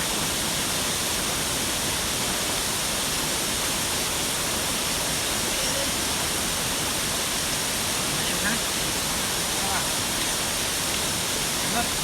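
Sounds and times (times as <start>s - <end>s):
waterfall rushing: 2.6s - 12.0s.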